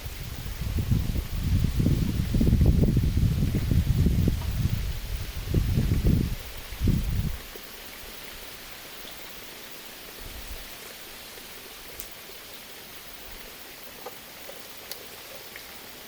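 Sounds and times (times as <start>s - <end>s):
low rumbling on microphone: 0.0s - 7.4s
steady hiss: 0.0s - 16.0s
faint ticks: 11.8s - 12.3s, 13.8s - 15.9s.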